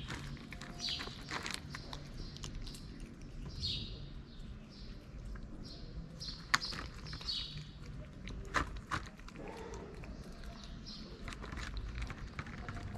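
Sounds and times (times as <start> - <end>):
cat eating from plastic tub: 0.0 - 12.9
small birds chirping: 0.0 - 12.9.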